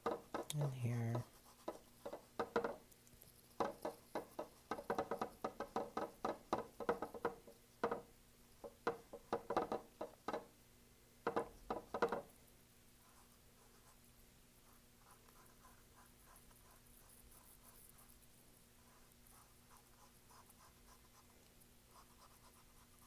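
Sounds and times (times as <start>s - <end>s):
paintbrush tapping on canvas: 1.5s - 2.8s, 3.5s - 10.5s.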